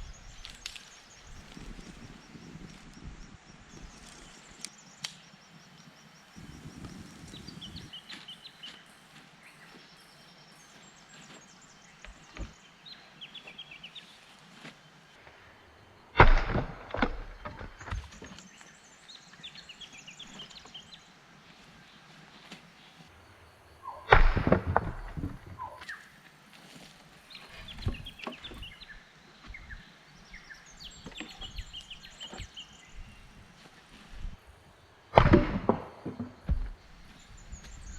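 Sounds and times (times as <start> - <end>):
small birds chirping: 0.0 - 35.1, 35.9 - 37.9
sharp clicks: 4.6 - 5.3.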